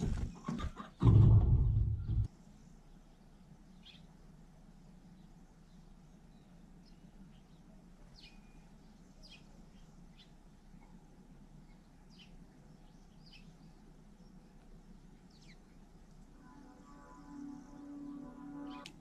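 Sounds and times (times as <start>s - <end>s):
low background rumble: 0.0s - 8.0s.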